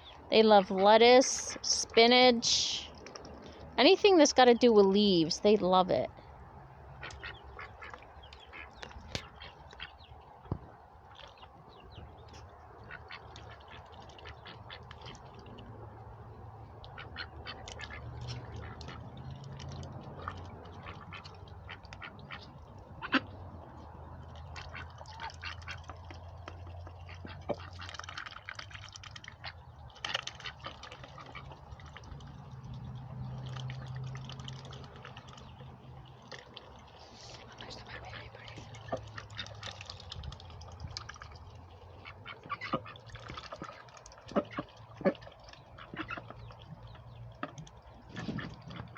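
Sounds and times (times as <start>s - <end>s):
ducks quacking: 0.0s - 2.8s, 6.9s - 10.1s, 12.8s - 15.4s, 16.8s - 19.2s, 20.1s - 23.4s, 24.3s - 26.0s, 26.8s - 31.6s, 41.8s - 46.7s.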